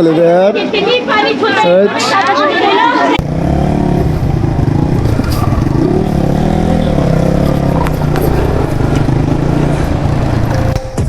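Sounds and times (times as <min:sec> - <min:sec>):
motorcycle engine at low revs: 0:03.2 - 0:11.0.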